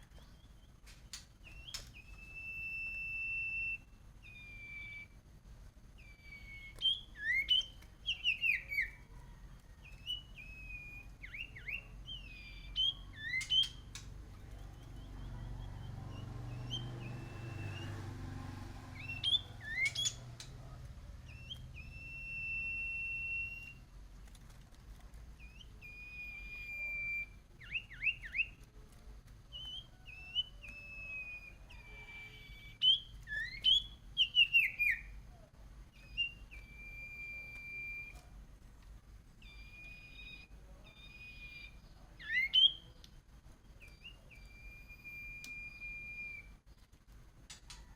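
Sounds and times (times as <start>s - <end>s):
songbird whistling song: 0.0s - 5.3s, 5.9s - 23.9s, 25.3s - 28.7s, 29.5s - 38.3s, 39.4s - 46.7s.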